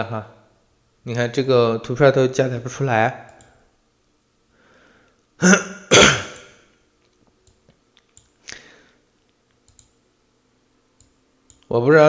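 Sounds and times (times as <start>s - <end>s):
man clearing his throat: 5.4s - 6.5s
faint clicks: 9.2s - 10.0s, 11.0s - 11.7s.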